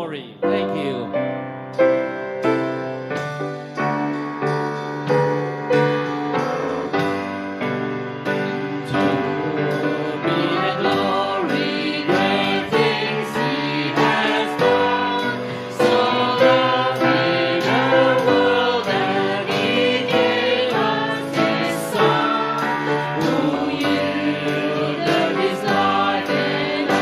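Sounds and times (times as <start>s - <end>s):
piano accompaniment: 0.0s - 27.0s
group singing a hymn: 8.4s - 27.0s.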